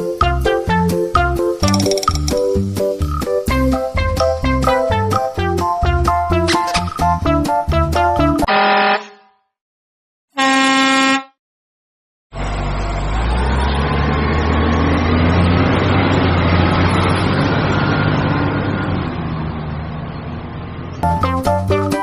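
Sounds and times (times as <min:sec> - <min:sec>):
music: 0:00.0 - 0:08.5, 0:21.0 - 0:22.0.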